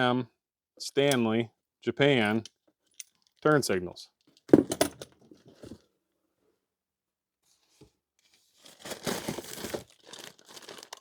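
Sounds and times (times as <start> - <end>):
packaging rustling: 8.6 - 11.0
wrapping crinkling and tearing: 8.6 - 11.0.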